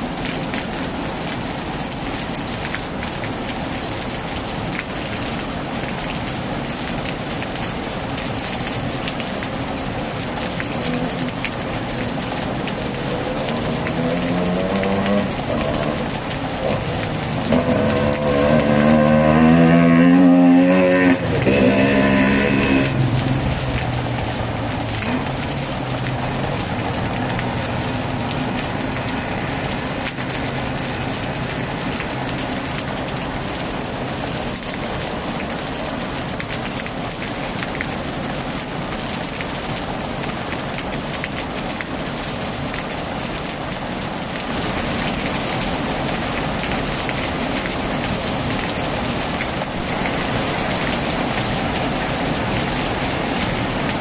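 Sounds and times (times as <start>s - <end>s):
heavy rain on a tin roof: 0.0s - 54.0s
passing engine: 12.9s - 25.3s.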